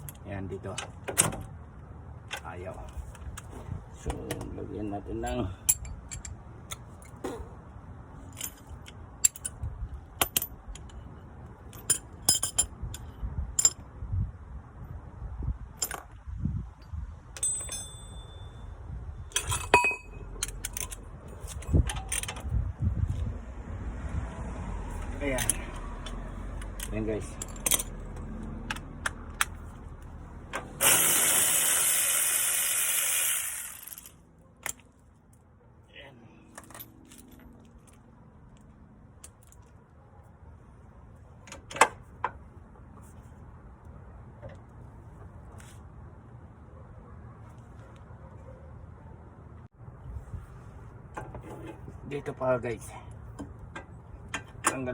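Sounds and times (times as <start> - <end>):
metal tools clinking on car parts: 5.1 - 7.6, 8.2 - 13.8, 17.3 - 22.6, 25.1 - 29.8, 53.3 - 54.9.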